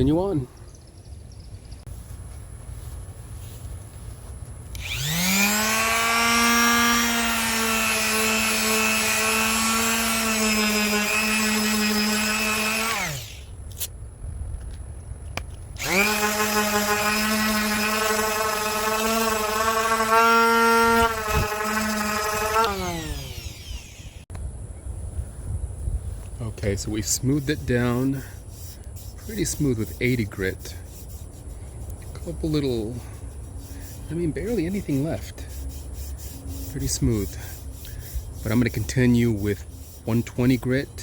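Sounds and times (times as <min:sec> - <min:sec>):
electric power sander whining: 0:04.7 - 0:13.5, 0:15.8 - 0:24.3.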